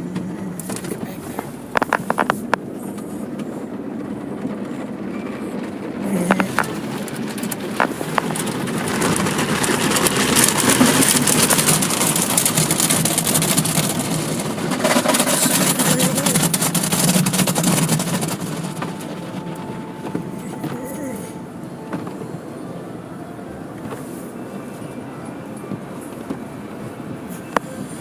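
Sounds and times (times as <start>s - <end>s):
car wash water spray: 6.4s - 20.4s.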